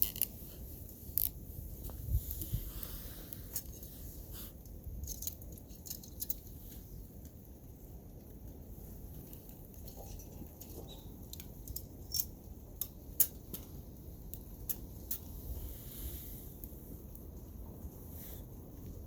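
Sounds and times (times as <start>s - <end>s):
small crackles and clicks: 0.0s - 19.0s.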